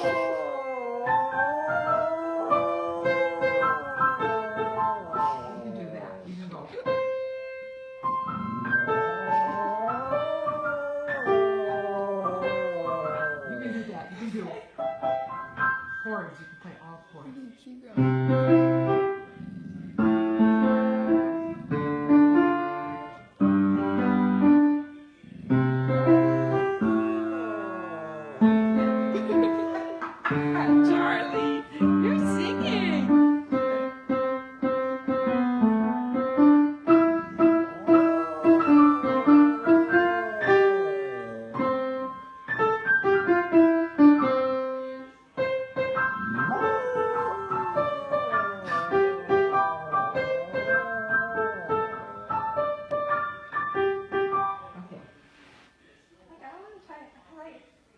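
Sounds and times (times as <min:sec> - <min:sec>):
dog howling: 0:00.0 - 0:06.3, 0:08.4 - 0:14.0, 0:25.3 - 0:29.9, 0:37.2 - 0:42.2, 0:46.2 - 0:53.2
piano chords: 0:00.0 - 0:14.2, 0:18.0 - 0:54.8.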